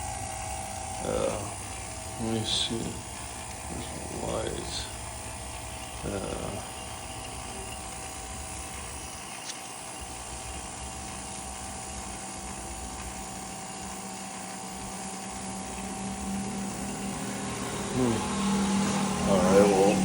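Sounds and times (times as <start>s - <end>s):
furnace whir and hum: 0.0s - 20.0s
small click: 9.4s - 9.6s.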